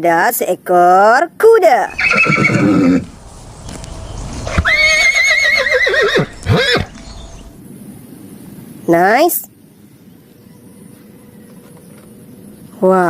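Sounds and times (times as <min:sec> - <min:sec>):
horse whinnying: 0:01.9 - 0:03.1, 0:04.5 - 0:07.5.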